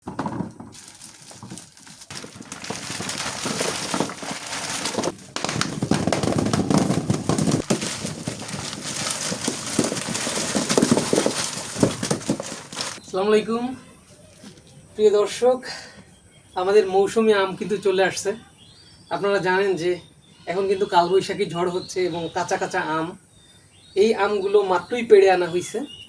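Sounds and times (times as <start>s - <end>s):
crackling and rustling: 0.0s - 13.0s.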